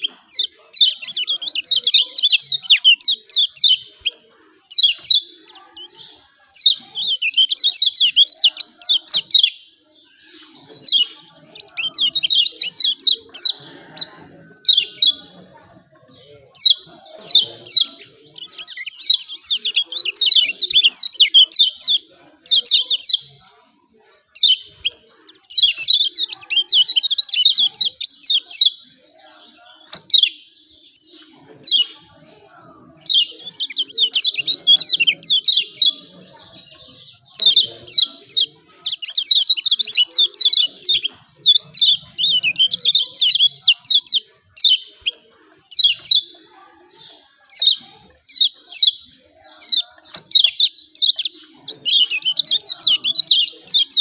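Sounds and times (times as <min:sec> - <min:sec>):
bird chirping calls: 0:00.0 - 0:54.0.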